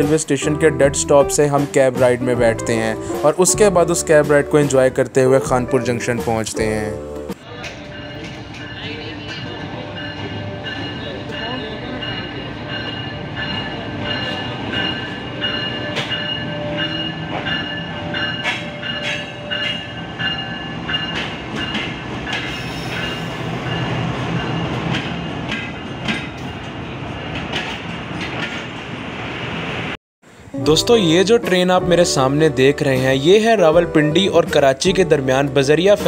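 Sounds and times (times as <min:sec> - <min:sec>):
train rolling past: 0:00.0 - 0:36.0
wheels clacking over rail joints: 0:07.6 - 0:29.0
high wheel squeal: 0:22.4 - 0:24.6.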